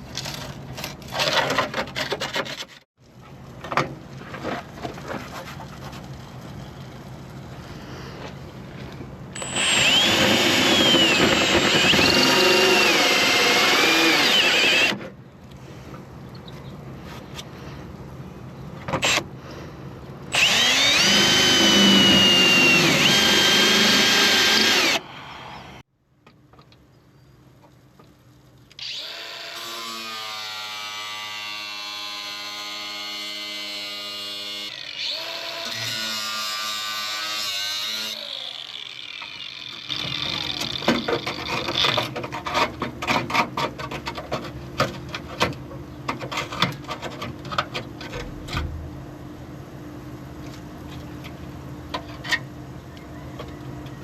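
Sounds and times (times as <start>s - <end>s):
power tool whining: 9.4s - 15.0s, 20.3s - 25.8s.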